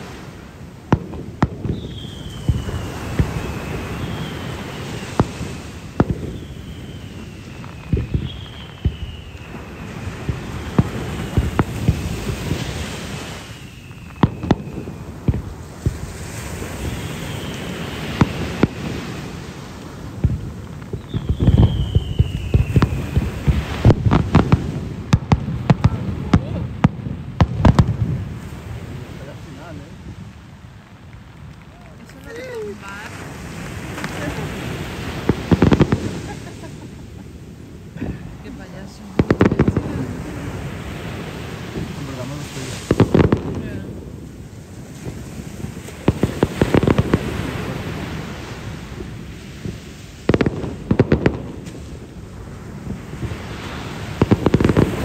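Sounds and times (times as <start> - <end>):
fireworks bursting bangs: 0.0 - 55.0
descending firework whistle: 1.4 - 26.6, 30.9 - 38.3
firework whistle falling in pitch: 1.6 - 5.3, 6.1 - 12.2, 16.5 - 18.8, 21.0 - 23.6.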